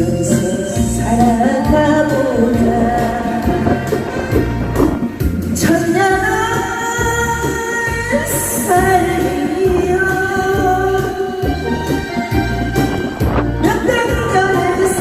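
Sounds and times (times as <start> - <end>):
person singing long held notes: 0.0 - 5.0
pulsing bass beat: 0.0 - 15.0.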